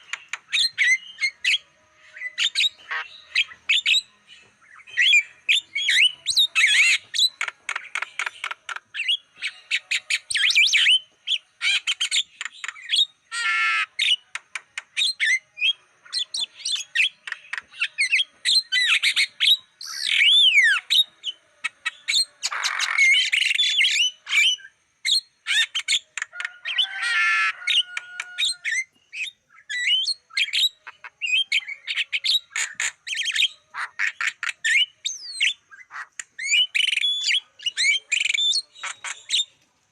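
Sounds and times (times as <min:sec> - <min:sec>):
bird chattering and whistling: 0:00.0 - 0:39.6.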